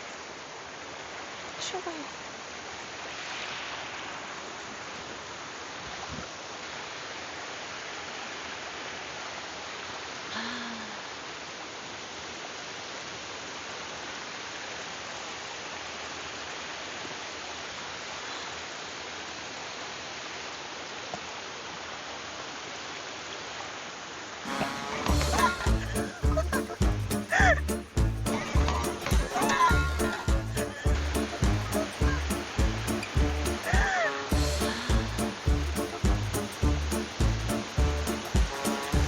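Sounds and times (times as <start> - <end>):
heavy rain: 0.0 - 39.0
stream rushing: 0.0 - 39.0.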